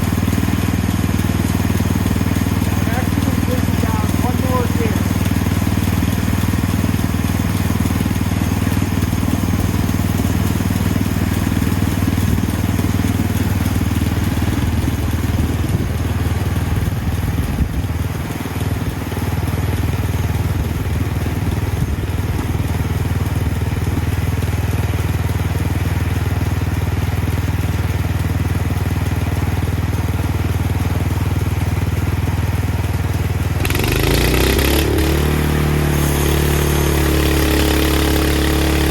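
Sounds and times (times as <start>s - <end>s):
band sawmill cutting log: 0.0s - 17.4s, 33.2s - 38.9s.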